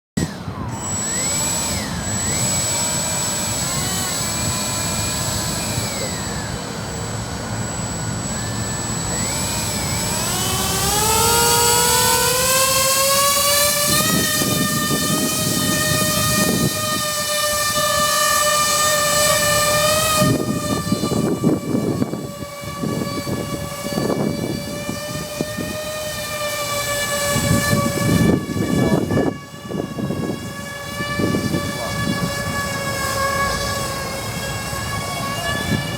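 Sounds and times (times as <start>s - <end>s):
electric motors whining: 0.2s - 35.9s
wind rumble on microphone: 9.2s - 35.9s.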